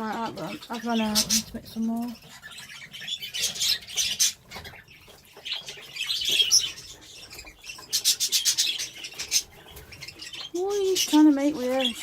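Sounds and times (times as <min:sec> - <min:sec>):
budgerigars chirping: 0:00.0 - 0:12.0.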